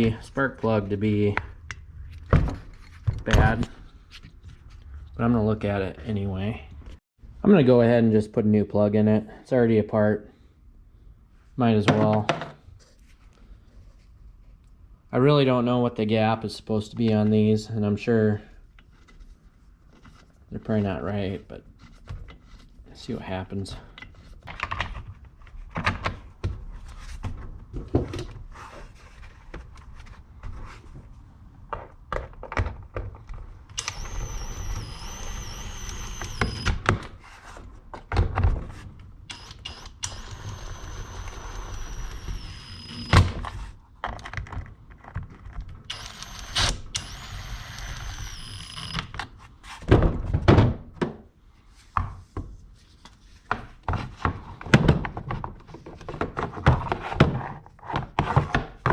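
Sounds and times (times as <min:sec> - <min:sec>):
high steady motor whine: 0:39.3 - 0:43.2.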